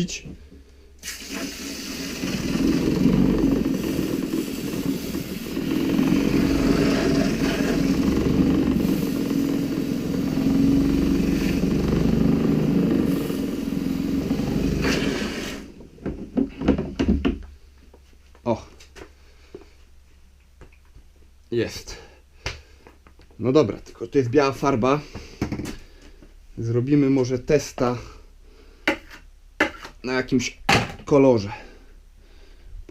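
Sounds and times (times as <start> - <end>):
water spray: 1.0 - 15.7
roller cleaner whirring: 1.2 - 16.5.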